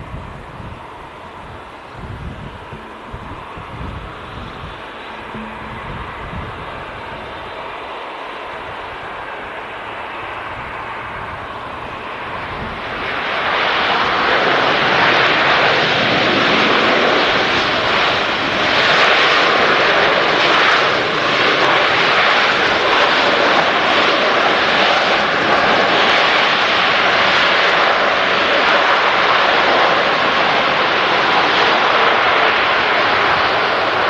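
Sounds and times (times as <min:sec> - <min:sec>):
jet airliner engine roar: 0:00.0 - 0:34.0.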